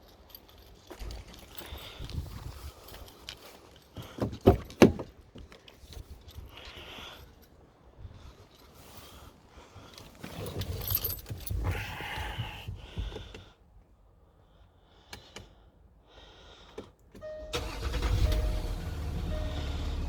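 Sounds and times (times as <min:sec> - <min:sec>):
car engine running: 0:17.4 - 0:20.0.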